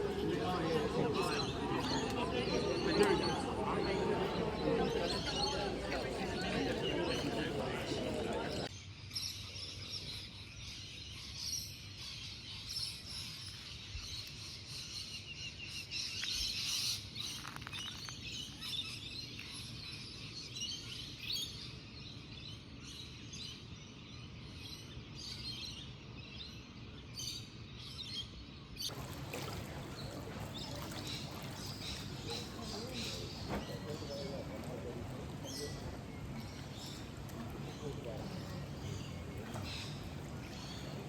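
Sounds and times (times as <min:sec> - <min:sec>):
small birds chirping: 0:28.0 - 0:41.0.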